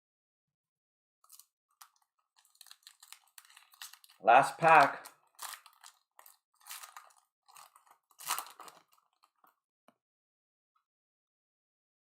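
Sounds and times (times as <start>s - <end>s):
card pack wrapper tearing and crinkling: 1.2s - 9.5s.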